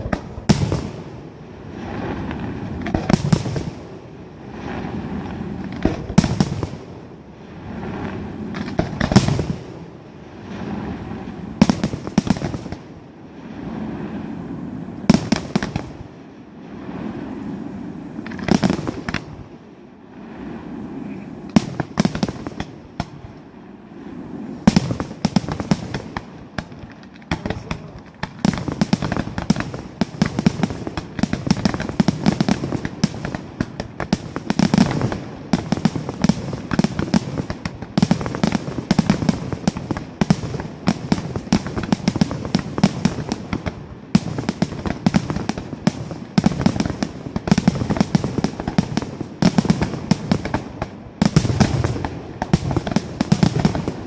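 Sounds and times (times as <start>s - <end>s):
fireworks booming and crackling: 0.0s - 54.0s
fireworks launching and bursting: 0.0s - 54.0s.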